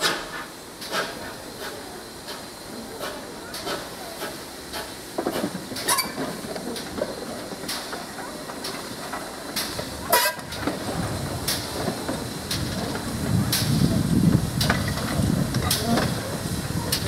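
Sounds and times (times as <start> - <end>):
low train rumble: 0.0 - 17.0
sharp knocks of train: 0.0 - 17.0.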